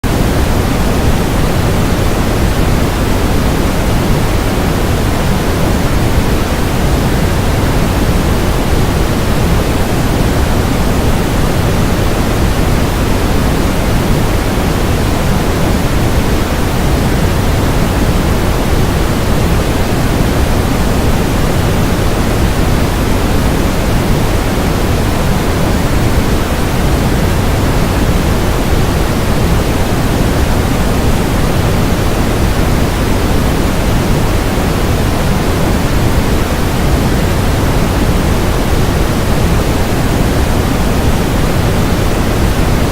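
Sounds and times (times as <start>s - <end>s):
loud steady rushing noise: 0.0s - 42.9s.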